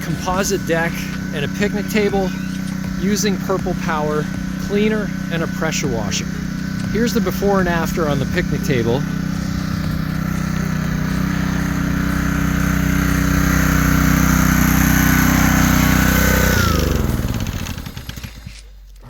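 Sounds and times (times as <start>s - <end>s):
water spray hissing: 0.0s - 12.6s
pressure washer engine running: 0.0s - 18.6s.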